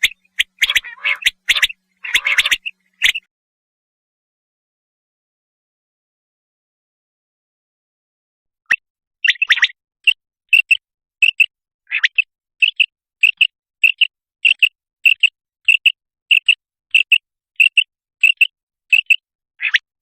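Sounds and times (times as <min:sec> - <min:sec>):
quail calling: 0:00.0 - 0:03.2.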